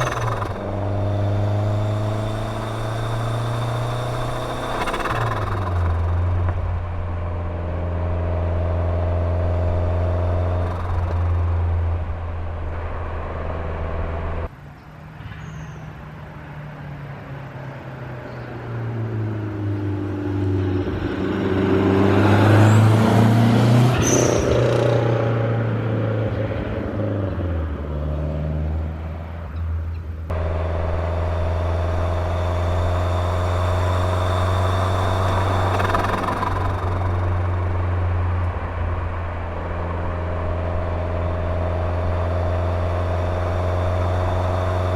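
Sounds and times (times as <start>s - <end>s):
car engine running and revving: 0.0s - 14.5s, 30.3s - 44.9s.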